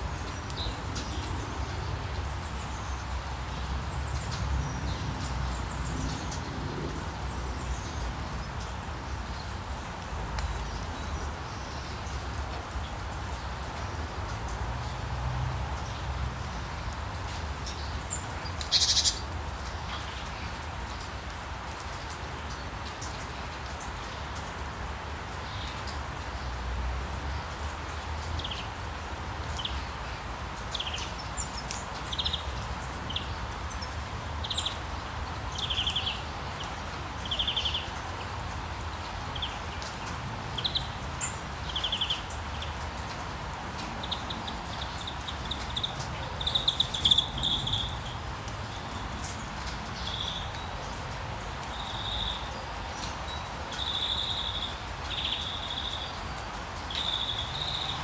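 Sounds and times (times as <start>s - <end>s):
rain hissing: 26.1s - 58.0s.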